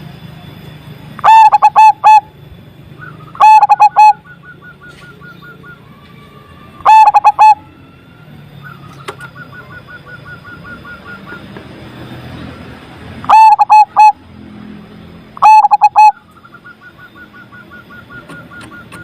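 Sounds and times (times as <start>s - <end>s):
dove rolling coos: 1.2s - 2.3s, 3.4s - 4.2s, 6.8s - 7.7s, 13.2s - 14.2s, 15.4s - 16.2s
dove short high notes: 1.2s - 2.4s, 3.0s - 5.8s, 6.8s - 7.7s, 13.2s - 14.2s, 15.4s - 18.8s.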